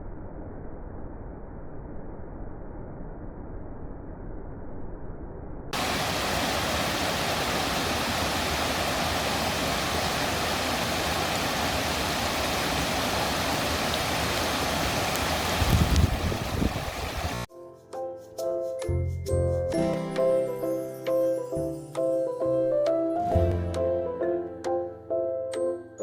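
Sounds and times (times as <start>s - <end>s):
waterfall roaring: 5.8s - 17.5s.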